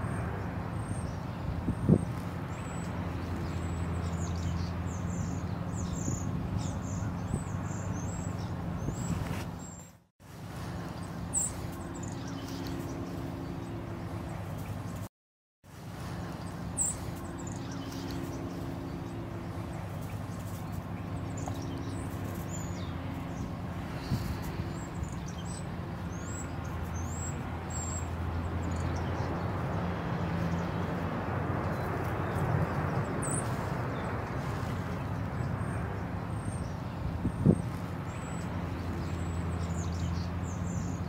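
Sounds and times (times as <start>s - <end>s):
steady low hum: 15.7s - 41.0s.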